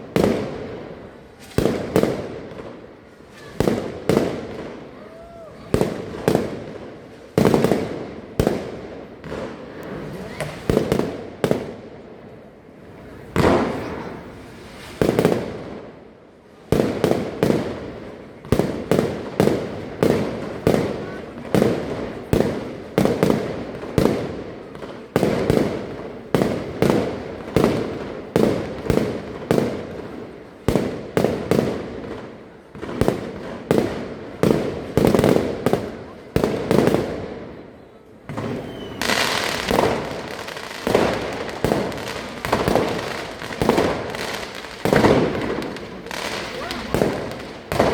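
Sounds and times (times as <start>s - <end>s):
firework crackling: 0.0s - 12.2s, 12.8s - 15.9s, 38.3s - 47.9s.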